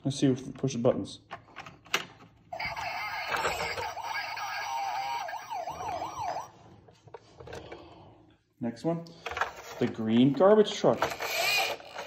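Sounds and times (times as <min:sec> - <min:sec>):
toy police siren wailing: 0:02.5 - 0:06.8, 0:11.0 - 0:12.0.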